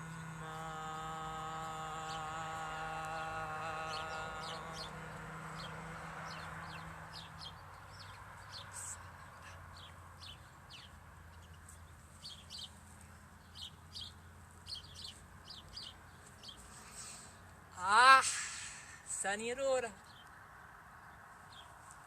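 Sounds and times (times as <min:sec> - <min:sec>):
low steady hum: 0:00.0 - 0:07.8
small birds chirping: 0:00.0 - 0:17.7, 0:18.8 - 0:22.0.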